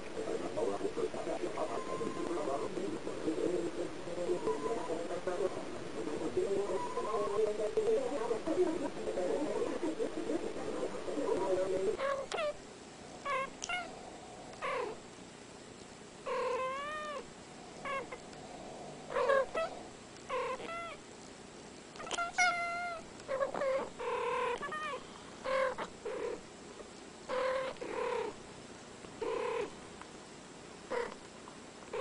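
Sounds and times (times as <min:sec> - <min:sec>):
cats chirping meows: 0:01.6 - 0:02.7, 0:04.2 - 0:05.1, 0:06.6 - 0:07.4, 0:12.0 - 0:12.6, 0:13.2 - 0:13.9, 0:16.3 - 0:18.2, 0:19.1 - 0:21.0, 0:22.0 - 0:26.4, 0:27.3 - 0:28.4.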